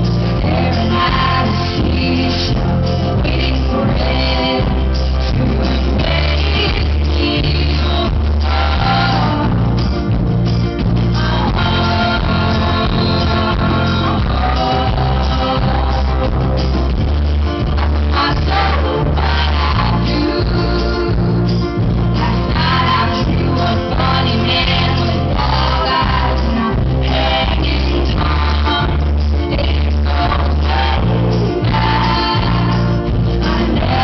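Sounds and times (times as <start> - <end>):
heavy booming bass line: 0.0 - 34.0
live band music: 0.0 - 34.0
women singing: 0.2 - 9.9, 11.0 - 16.9, 17.6 - 34.0.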